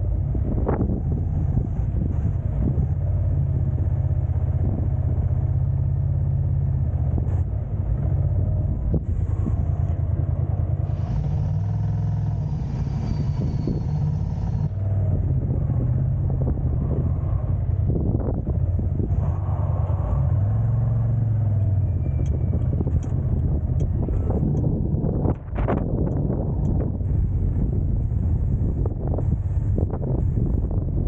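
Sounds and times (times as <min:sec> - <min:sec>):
car engine and road rumble: 0:00.0 - 0:31.0
hiss: 0:10.8 - 0:14.7.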